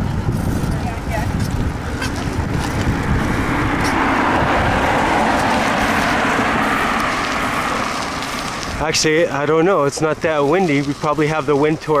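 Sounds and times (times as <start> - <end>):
air rushing past: 0.0 - 9.0
road and traffic noise: 0.0 - 12.0.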